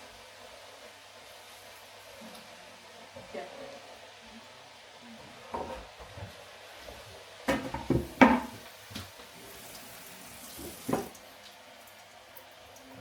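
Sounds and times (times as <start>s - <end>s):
pots and utensils clattering: 7.5s - 9.1s
running water: 7.6s - 13.0s.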